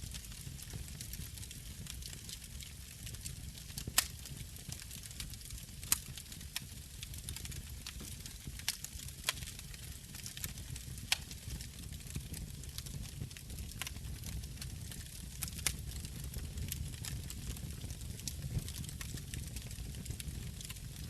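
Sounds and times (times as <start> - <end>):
wood fire crackling: 0.0 - 21.0
sharp fire pops: 15.4 - 21.0.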